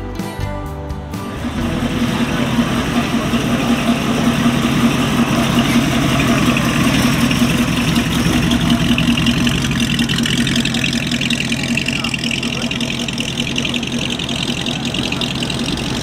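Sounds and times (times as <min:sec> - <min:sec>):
car engine rumbling past: 0:01.2 - 0:16.0.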